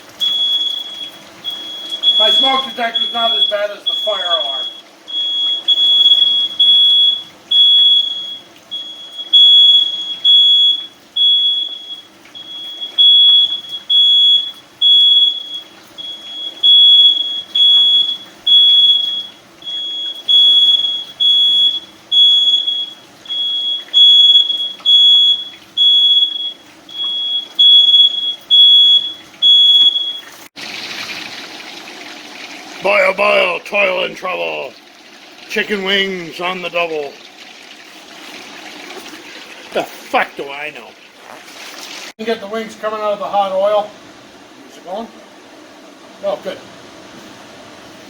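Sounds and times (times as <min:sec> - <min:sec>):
smoke detector beeping: 0:00.2 - 0:30.5.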